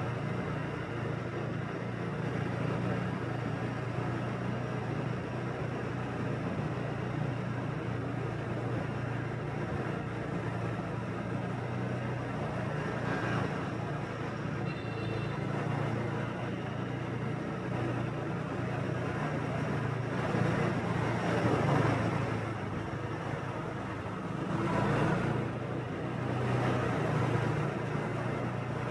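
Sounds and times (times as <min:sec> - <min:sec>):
tyre and street noise: 0:00.0 - 0:28.9.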